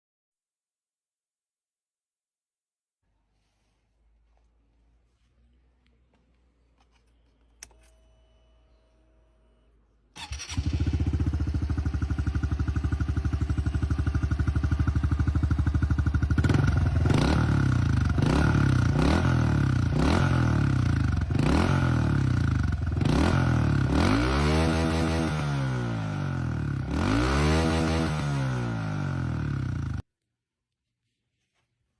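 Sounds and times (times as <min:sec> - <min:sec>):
motorcycle engine starting and idling: 0:10.1 - 0:30.0
engine revving: 0:10.2 - 0:30.0.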